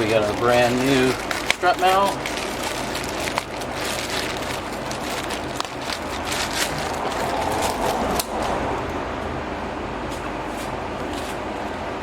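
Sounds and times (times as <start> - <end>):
packaging rustling: 0.0 - 8.3
steady low hum: 0.0 - 12.0.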